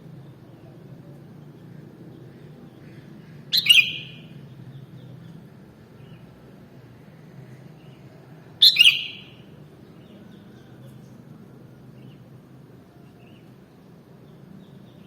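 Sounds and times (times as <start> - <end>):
bird short sharp calls: 2.8 - 4.3, 8.6 - 9.4.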